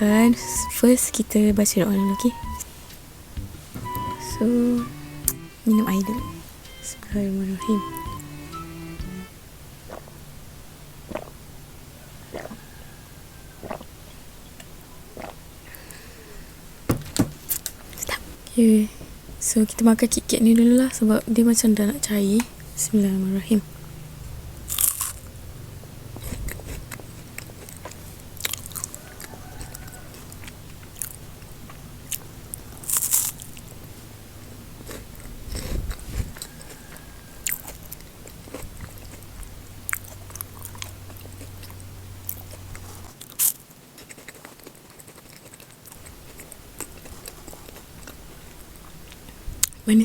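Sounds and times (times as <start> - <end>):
chewing wafer bar: 12.3 - 12.7, 24.6 - 25.3, 26.1 - 33.9, 34.8 - 49.8.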